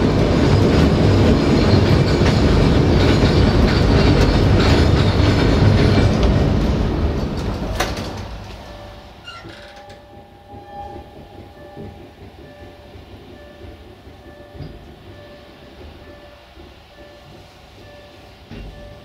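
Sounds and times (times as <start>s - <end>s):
train rushing and rumbling: 0.0s - 19.0s
faint steady tones: 8.6s - 19.0s.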